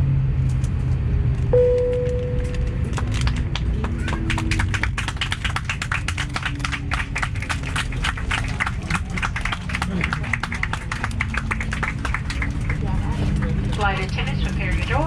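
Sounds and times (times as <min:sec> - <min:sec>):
aircraft cabin hum: 0:01.3 - 0:15.0
airliner cabin chime: 0:01.6 - 0:02.9
passengers applauding: 0:02.8 - 0:15.0.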